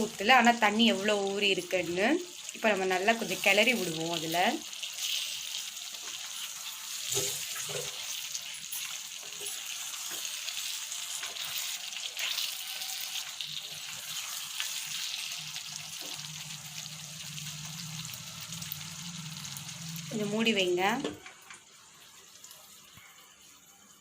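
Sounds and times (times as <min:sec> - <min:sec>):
chicken sizzling in a skillet: 0:00.0 - 0:24.0
spatula scraping a pan: 0:06.0 - 0:15.2.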